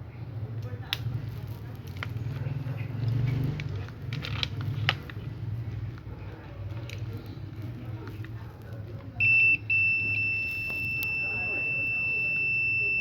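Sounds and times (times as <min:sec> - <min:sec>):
multimeter high-pitched beep: 0:09.2 - 0:13.0.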